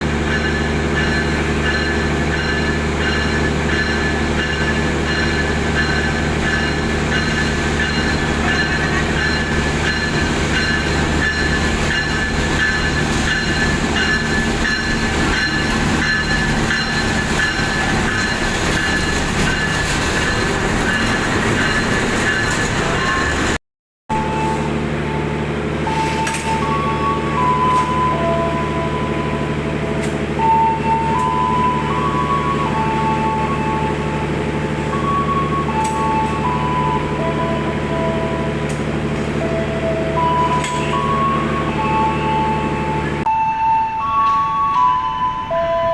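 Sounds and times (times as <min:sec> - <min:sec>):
train running with low drone: 0:00.0 - 0:45.9.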